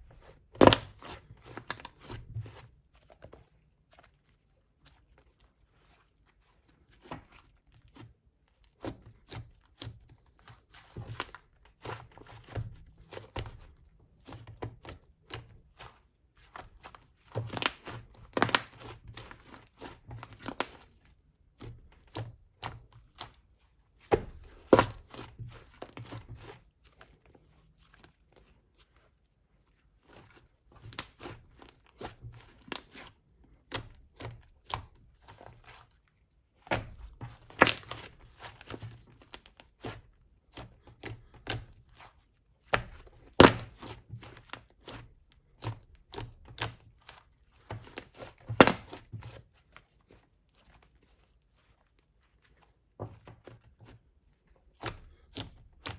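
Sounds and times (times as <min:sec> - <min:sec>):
slime crackling and popping: 0:48.0 - 0:49.1.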